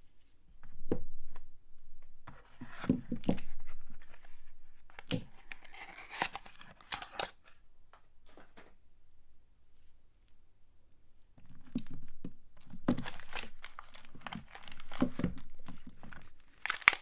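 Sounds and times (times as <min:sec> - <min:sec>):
wrapping tearing and crinkling: 0:04.9 - 0:07.5, 0:12.9 - 0:17.0.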